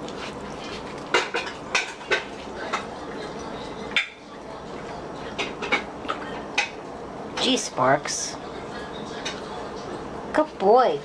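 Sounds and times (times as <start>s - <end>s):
steady background noise: 0.0s - 11.0s
dishes and utensils clinking: 0.6s - 6.8s.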